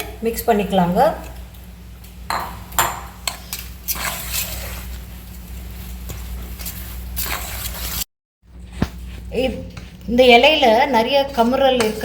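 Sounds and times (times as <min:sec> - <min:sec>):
food mixing in a bowl: 0:03.1 - 0:08.1.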